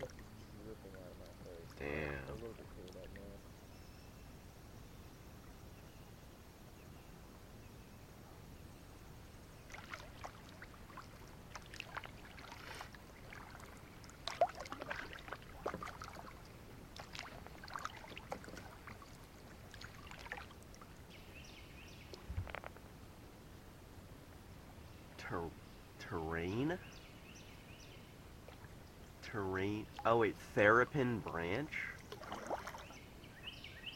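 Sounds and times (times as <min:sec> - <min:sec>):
kayak paddle splashes: 0:09.6 - 0:21.0, 0:32.0 - 0:33.1
water dripping: 0:09.7 - 0:12.6, 0:13.2 - 0:21.0.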